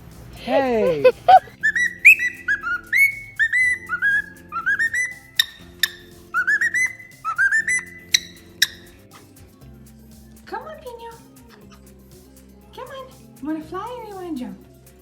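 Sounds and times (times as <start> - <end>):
background music: 0.0 - 15.0
parrot whistling: 1.0 - 9.0.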